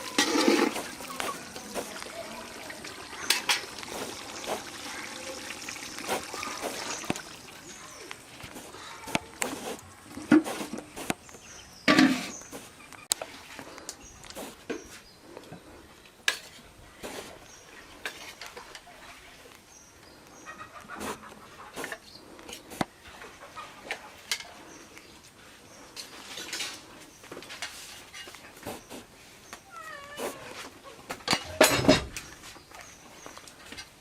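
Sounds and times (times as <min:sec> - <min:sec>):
utensils clinking against pots: 0:00.0 - 0:01.7, 0:03.2 - 0:04.4.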